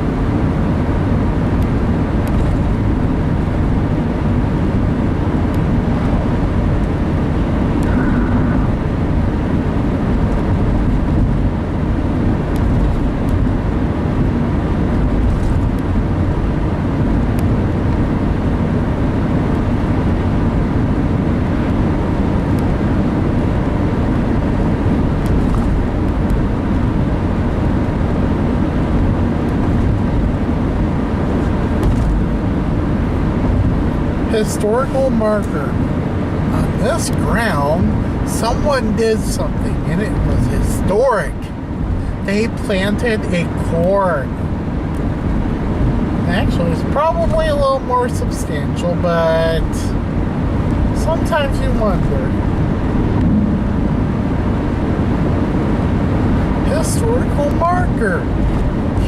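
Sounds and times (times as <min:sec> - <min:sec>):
car engine and tyre noise: 0:00.0 - 0:59.0.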